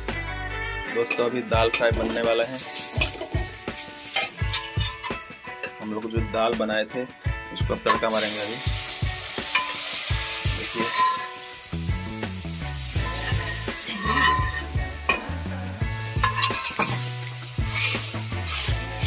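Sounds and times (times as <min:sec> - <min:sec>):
metal spatula scraping pan: 0:01.0 - 0:05.8, 0:09.4 - 0:10.0, 0:10.6 - 0:11.6, 0:13.0 - 0:15.2, 0:16.1 - 0:18.7
lentils sizzling in hot oil: 0:01.1 - 0:06.2, 0:07.8 - 0:19.0.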